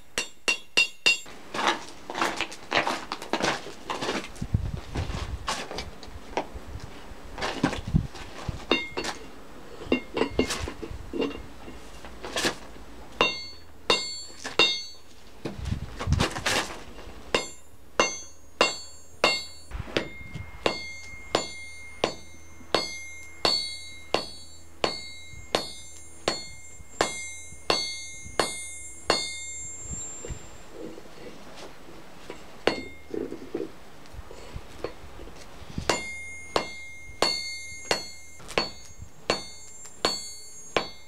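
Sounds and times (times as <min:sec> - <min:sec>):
hammer striking steel on anvil: 0:00.0 - 0:01.3, 0:08.7 - 0:11.5, 0:13.2 - 0:15.0, 0:17.3 - 0:30.8, 0:32.3 - 0:33.4, 0:34.8 - 0:35.0, 0:35.9 - 0:41.0
metallic ringing: 0:00.0 - 0:01.3, 0:08.7 - 0:12.0, 0:13.2 - 0:15.1, 0:16.9 - 0:33.6, 0:34.7 - 0:41.0.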